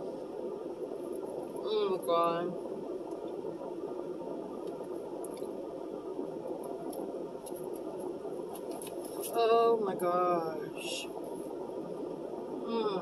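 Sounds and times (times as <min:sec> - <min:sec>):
person humming: 0:12.6 - 0:13.0.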